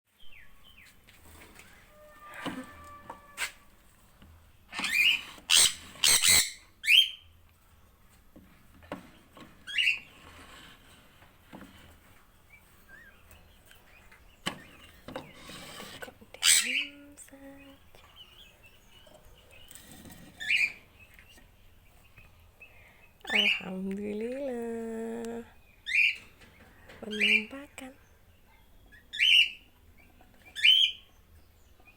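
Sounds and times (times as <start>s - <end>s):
parrot squawking: 4.8s - 7.2s, 16.4s - 16.8s.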